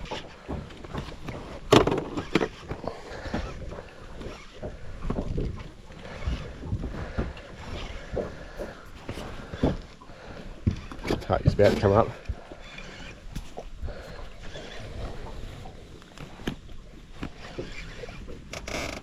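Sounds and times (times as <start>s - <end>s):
knocks in a boat: 0.0s - 5.6s.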